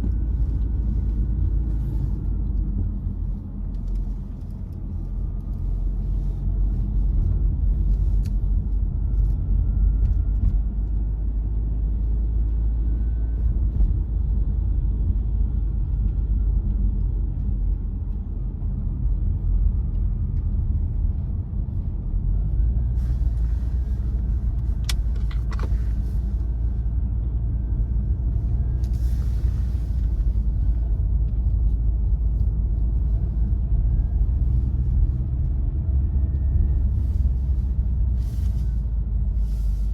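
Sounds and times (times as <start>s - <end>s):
engine and tyre rumble: 0.0s - 39.9s
faint whine: 0.0s - 39.9s.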